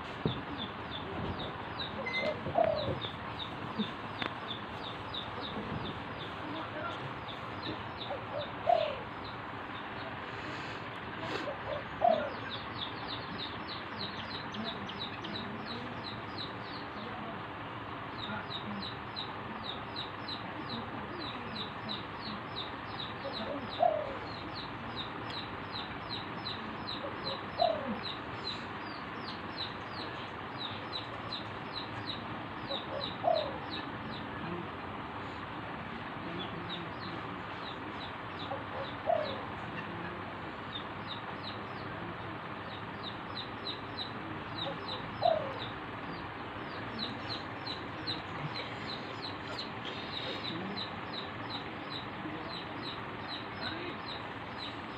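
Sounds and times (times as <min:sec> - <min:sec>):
dove cooing: 0:00.0 - 0:09.4, 0:11.2 - 0:16.2, 0:23.2 - 0:25.1, 0:26.1 - 0:34.8, 0:36.2 - 0:53.0.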